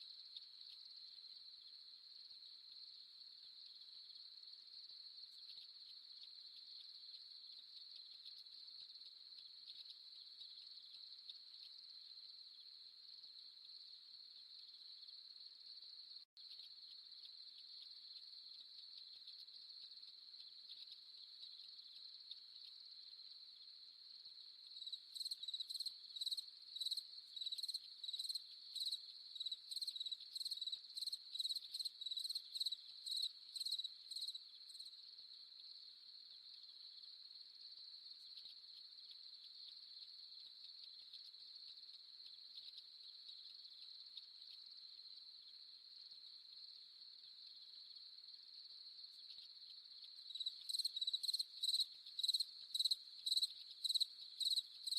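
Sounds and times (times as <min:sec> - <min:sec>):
cricket trill: 0:00.0 - 0:54.9
loud cricket chirping: 0:14.6 - 0:54.9.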